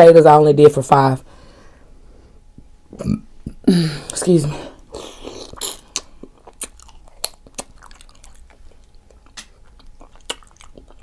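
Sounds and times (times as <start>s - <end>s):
close chewing and biting: 4.9s - 11.0s
wet mouth smacks: 5.4s - 11.0s.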